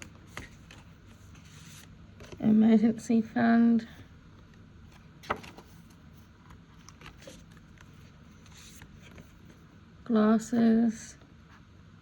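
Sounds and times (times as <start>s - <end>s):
paper envelopes rustling: 5.0s - 9.6s.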